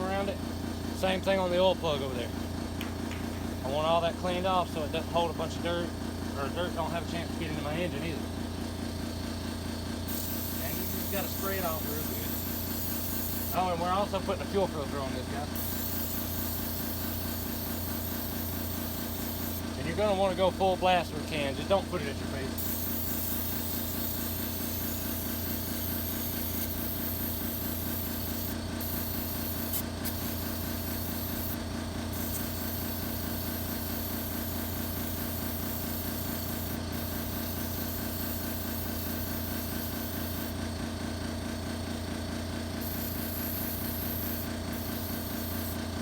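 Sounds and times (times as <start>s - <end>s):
steady machine hum: 0.0s - 46.0s
aerosol spray hissing: 10.1s - 13.7s, 15.5s - 19.7s, 22.6s - 40.5s, 42.8s - 45.8s.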